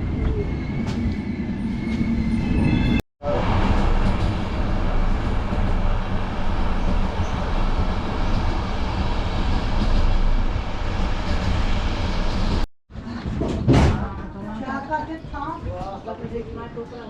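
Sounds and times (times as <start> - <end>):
train wheels on rails: 3.3 - 13.4.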